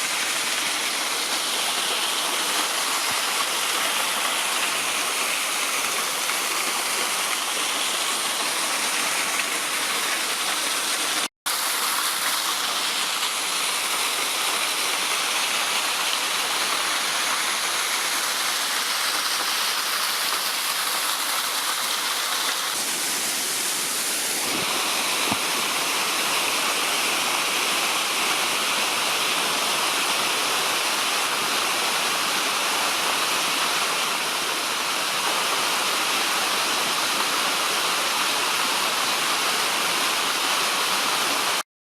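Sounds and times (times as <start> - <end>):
waterfall rushing: 0.0 - 41.6.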